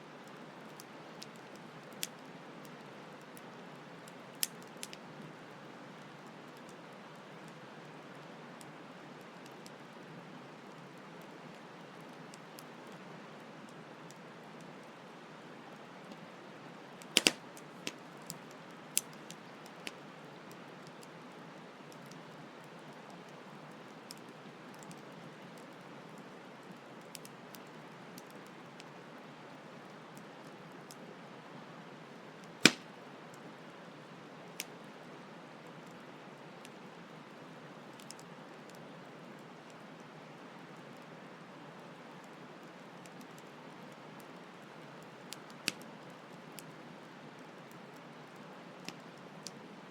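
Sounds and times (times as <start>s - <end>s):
campfire crackling: 0.2s - 31.2s, 32.0s - 41.1s, 41.9s - 49.9s
fire pops: 4.4s - 5.0s, 17.0s - 18.0s, 32.6s - 33.0s.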